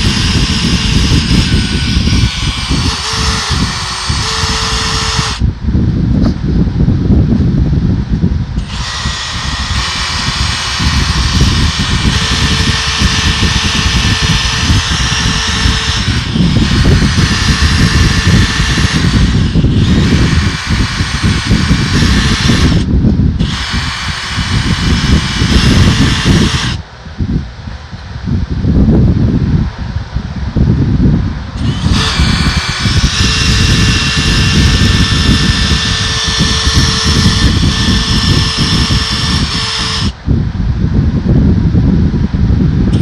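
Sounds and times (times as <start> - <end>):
drill wire brush scrubbing metal: 0.0 - 5.4, 8.6 - 26.8, 31.6 - 40.2
faint motor whine: 0.0 - 6.4, 8.5 - 28.2, 31.4 - 40.5.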